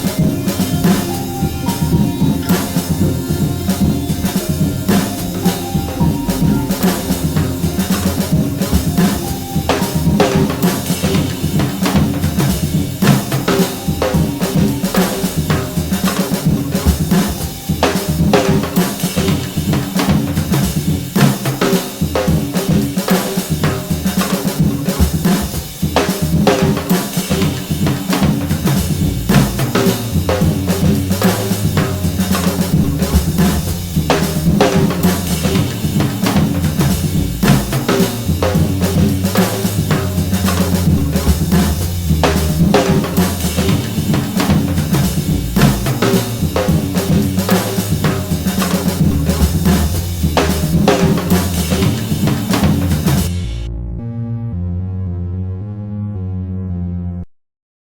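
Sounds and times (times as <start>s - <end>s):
deep bass note: 0.0s - 18.4s, 28.4s - 57.3s
low sustained notes: 0.0s - 18.7s, 28.5s - 56.1s
drum kit played busily: 0.0s - 53.7s.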